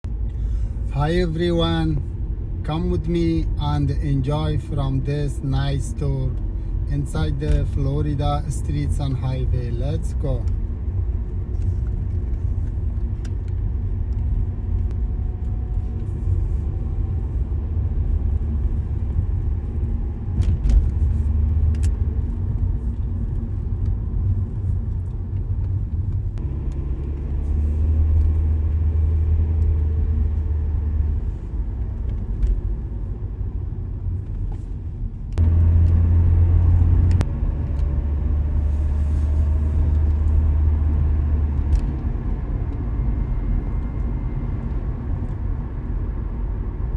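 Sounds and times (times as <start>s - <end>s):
car engine and tyres rumbling: 0.0s - 46.9s.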